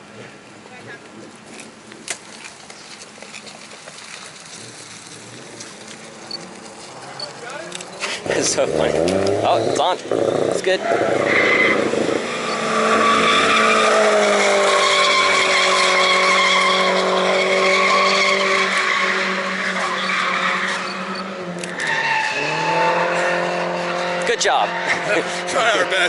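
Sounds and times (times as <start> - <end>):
tyres squealing: 4.6 - 23.1
car engine at high revs: 5.3 - 26.0.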